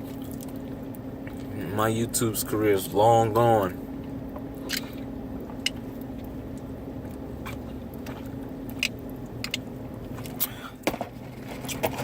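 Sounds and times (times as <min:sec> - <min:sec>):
person chewing food: 0:00.0 - 0:01.6, 0:04.0 - 0:10.6
low hum: 0:00.0 - 0:12.0.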